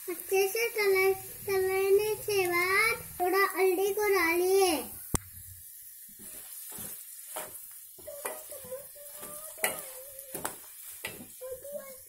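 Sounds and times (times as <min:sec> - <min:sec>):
oil sizzling in a pan: 0:00.0 - 0:12.0
spoon stirring and scraping pan: 0:06.0 - 0:12.0.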